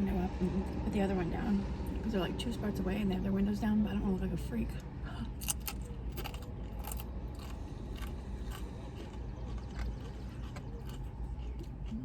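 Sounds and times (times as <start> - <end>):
steady low hum: 0.0 - 12.0
person chewing food: 5.3 - 12.0
sharp crunches: 5.4 - 12.0.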